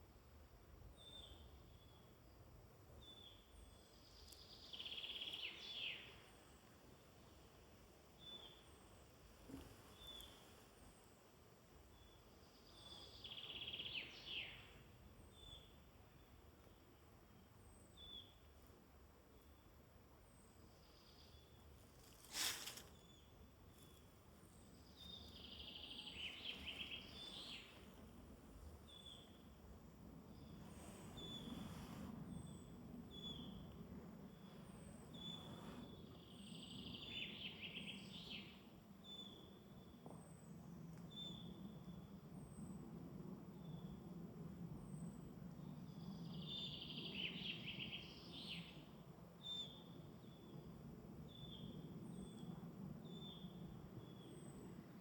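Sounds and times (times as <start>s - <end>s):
low steady background hiss: 0.0s - 55.0s
rustling noise: 21.8s - 23.0s, 30.5s - 32.2s
songbirds calling: 22.1s - 29.6s.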